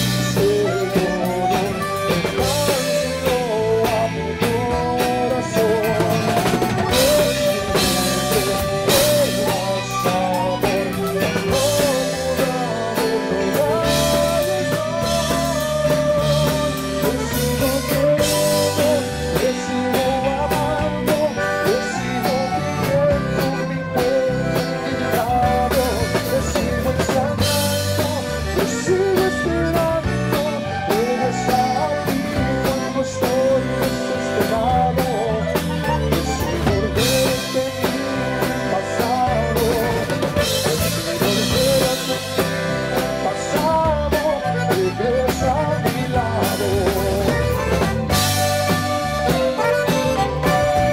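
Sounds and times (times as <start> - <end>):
accordion melody: 0.0 - 50.9
band playing: 0.0 - 50.9.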